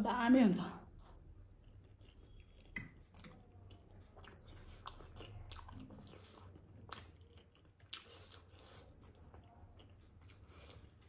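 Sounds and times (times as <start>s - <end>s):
wet mouth clicks and smacks: 2.6s - 3.4s.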